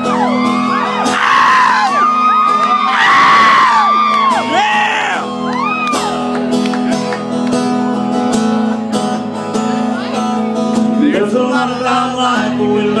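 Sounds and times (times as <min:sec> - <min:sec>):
people whooping and shouting: 0:00.0 - 0:06.4
country music with guitars and drums: 0:00.0 - 0:13.0.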